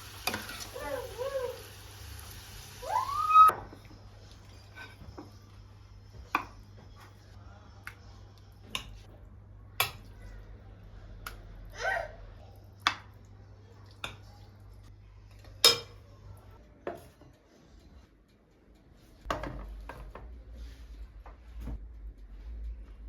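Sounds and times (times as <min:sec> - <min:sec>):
dishes and cutlery clinking: 0:03.6 - 0:05.5, 0:15.3 - 0:16.1, 0:16.8 - 0:18.1, 0:19.2 - 0:20.3.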